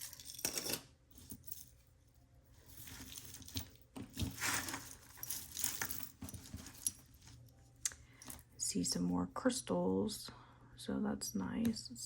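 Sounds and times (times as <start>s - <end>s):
metal jewelry clinking: 0.0s - 8.6s
rustling: 2.5s - 7.6s.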